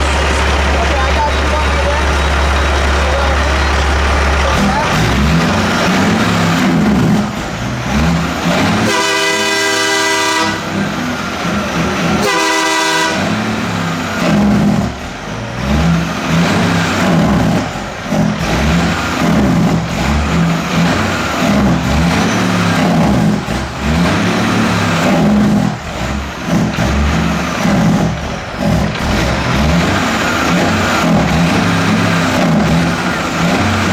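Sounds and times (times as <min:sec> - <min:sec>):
loud diesel truck exhaust: 0:00.0 - 0:33.9
truck train horn blasts: 0:08.4 - 0:11.2, 0:12.0 - 0:14.0.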